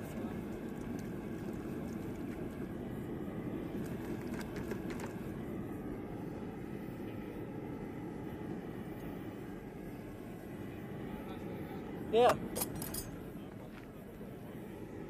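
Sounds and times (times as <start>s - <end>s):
gas burner roaring: 0.0s - 15.0s
faint metallic clinks: 12.5s - 13.3s.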